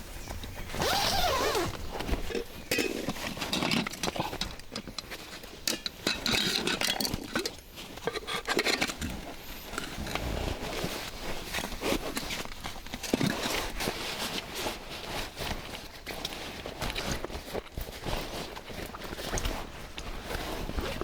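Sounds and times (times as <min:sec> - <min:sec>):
camp gear rustling and knocking: 0:00.0 - 0:21.0.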